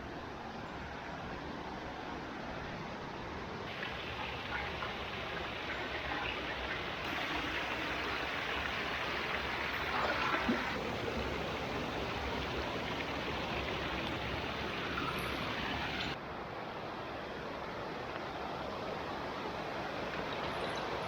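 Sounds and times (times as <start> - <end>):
stream rushing over rocks: 3.6 - 16.2.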